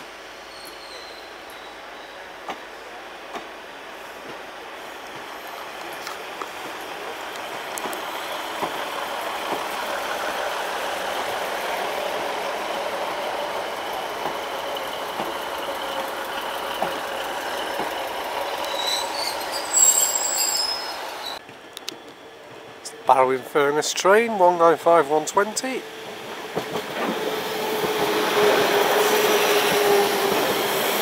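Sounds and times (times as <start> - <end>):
train engine and wheels rumbling: 0.0 - 31.0
high-pitched wheel squeal: 18.6 - 21.4.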